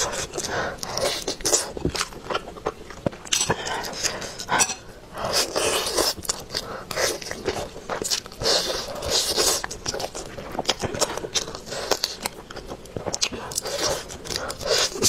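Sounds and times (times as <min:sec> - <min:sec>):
biting and chewing chicken: 0:00.0 - 0:15.0.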